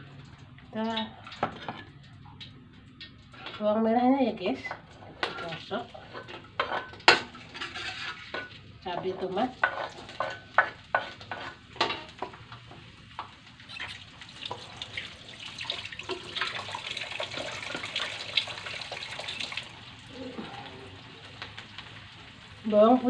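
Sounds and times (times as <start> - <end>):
vegetables sizzling in hot oil: 3.3 - 23.0
spatula scraping cutting board and wok: 5.0 - 8.5, 9.5 - 12.2.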